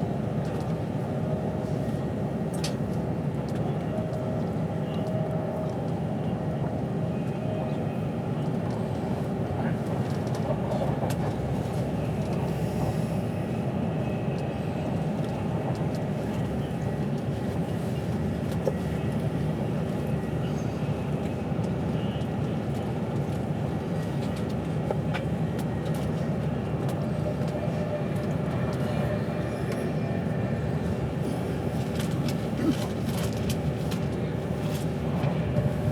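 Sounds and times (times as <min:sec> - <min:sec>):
train wheels rumbling on rails: 0:00.0 - 0:35.9.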